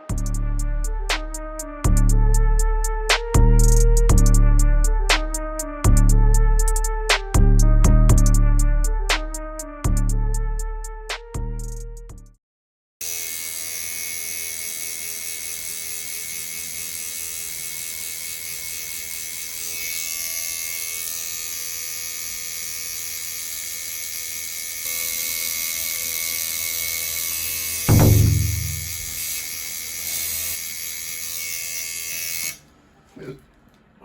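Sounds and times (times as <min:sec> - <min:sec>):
tattoo machine buzzing: 0:13.0 - 0:32.6.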